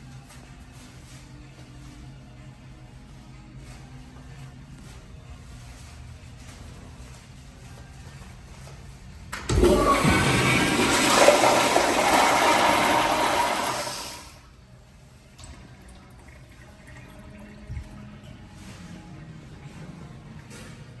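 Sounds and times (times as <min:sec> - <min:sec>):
toilet flushing water rush: 0:09.5 - 0:14.4.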